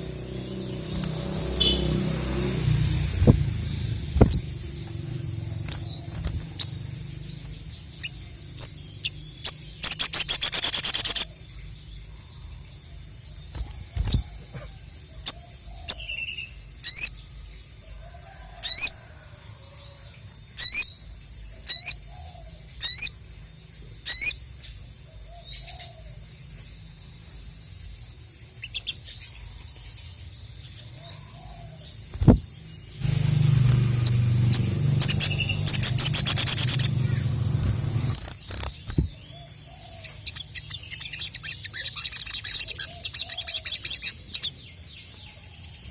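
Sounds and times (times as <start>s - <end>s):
songbird singing: 0.0s - 45.9s
sharp high bird notes: 0.5s - 5.9s, 33.0s - 38.7s.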